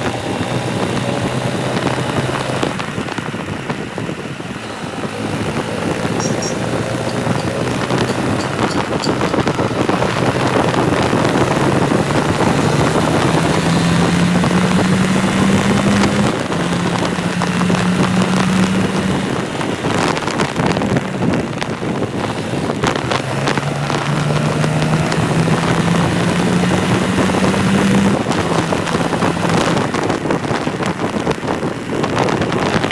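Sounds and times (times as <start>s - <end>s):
motorcycle engine running: 0.0s - 32.9s
wind rushing over microphone: 0.0s - 32.9s.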